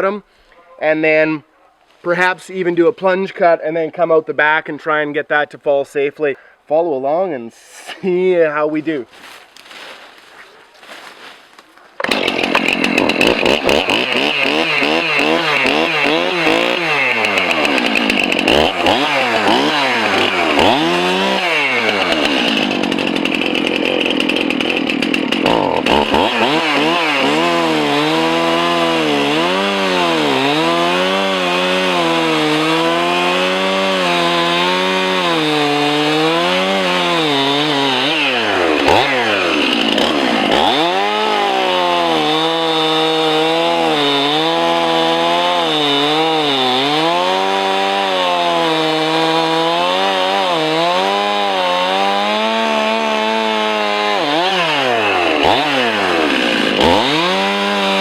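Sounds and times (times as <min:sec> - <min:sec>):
chainsaw cutting wood: 0:12.0 - 0:58.0.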